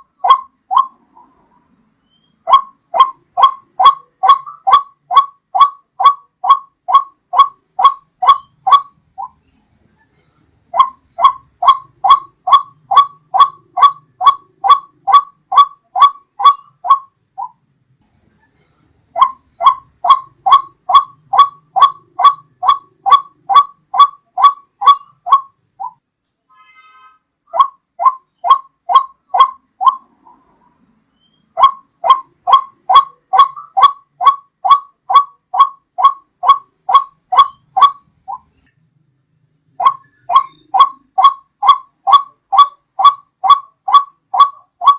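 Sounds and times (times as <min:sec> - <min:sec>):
waterhen calling: 0:00.0 - 0:01.4, 0:02.1 - 0:09.4, 0:10.7 - 0:17.6, 0:19.2 - 0:26.0, 0:27.5 - 0:30.5, 0:31.3 - 0:38.7, 0:39.7 - 0:44.9.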